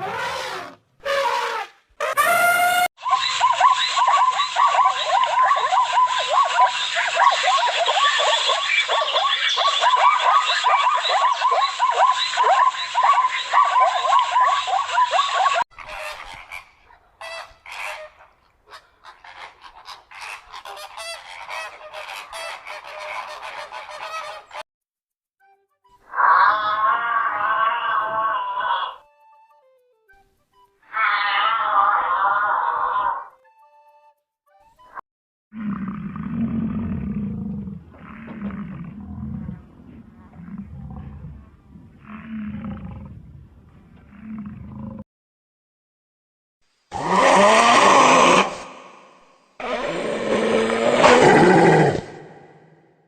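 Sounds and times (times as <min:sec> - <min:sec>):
waterfowl honking: 0:15.8 - 0:24.6
big cat roaring: 0:35.6 - 0:45.0, 0:47.0 - 0:48.8, 0:49.6 - 0:52.8.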